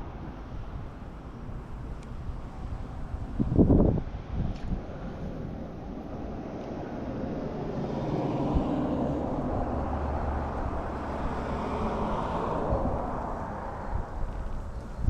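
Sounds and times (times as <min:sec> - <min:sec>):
passing vehicle: 0:00.0 - 0:15.0.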